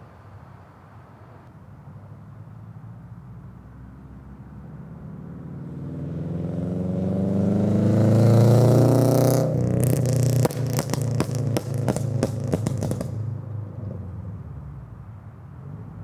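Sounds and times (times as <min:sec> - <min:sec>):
car engine revving: 0:05.7 - 0:13.4
exhaust crackling and popping: 0:08.1 - 0:13.5.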